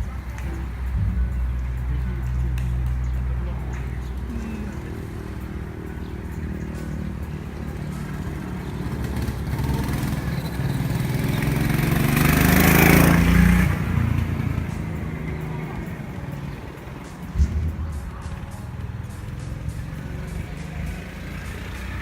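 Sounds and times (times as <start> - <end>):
go-kart engine running: 0.0 - 22.0.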